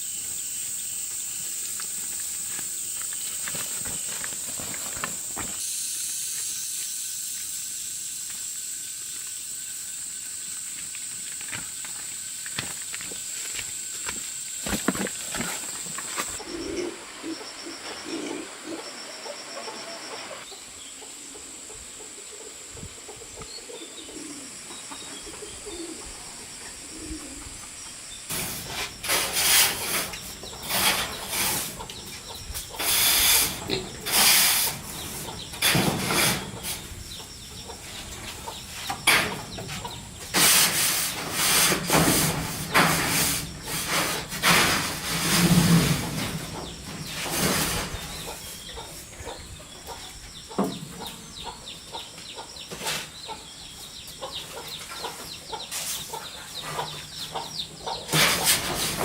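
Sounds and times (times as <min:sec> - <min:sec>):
insects chirping: 0:00.0 - 0:59.0
wings flapping and scuffling: 0:01.7 - 0:05.7, 0:10.8 - 0:16.6
chickens clucking: 0:14.7 - 0:59.0.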